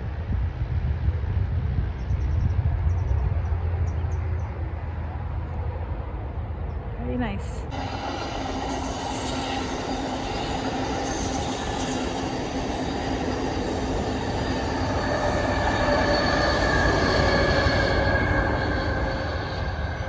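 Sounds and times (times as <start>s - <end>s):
train wheels rumbling on rail: 7.6s - 20.0s
thin high steady tones: 7.7s - 20.0s.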